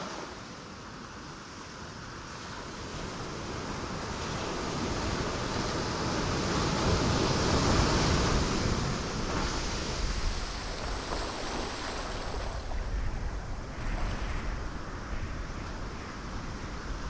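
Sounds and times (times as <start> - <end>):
ocean waves breaking on rocks: 2.8 - 17.0.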